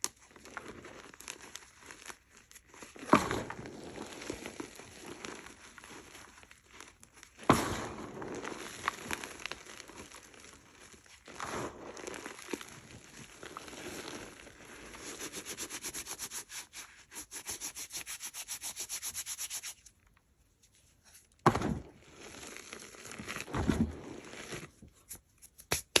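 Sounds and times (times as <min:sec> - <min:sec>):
chalk crushed and rubbed by hand: 0:07.9 - 0:21.4, 0:24.1 - 0:26.0.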